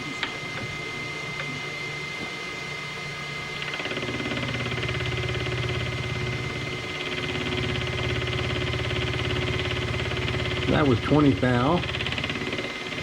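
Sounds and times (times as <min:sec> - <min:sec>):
milling machine whine: 0:00.0 - 0:13.0
cutter chattering on metal: 0:03.6 - 0:13.0.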